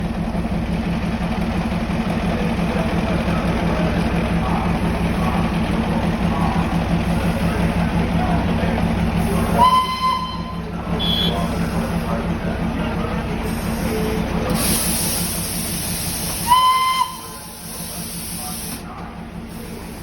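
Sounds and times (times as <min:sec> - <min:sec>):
locomotive running: 0:00.0 - 0:20.0
train whistle toot: 0:09.5 - 0:11.6, 0:16.4 - 0:17.5.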